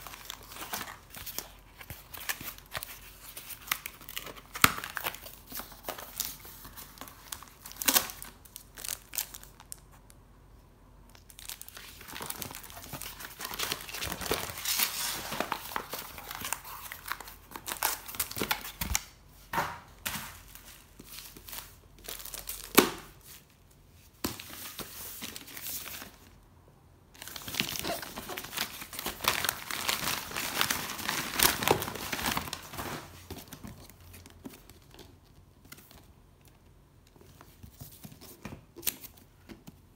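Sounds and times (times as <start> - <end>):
plastic packaging crinkling: 0.0 - 10.1, 11.1 - 19.0, 20.4 - 23.3, 27.2 - 36.1.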